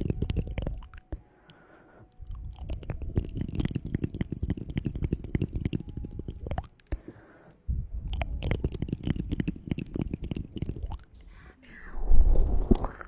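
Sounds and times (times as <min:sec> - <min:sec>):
heavy low rumble: 0:11.7 - 0:13.0.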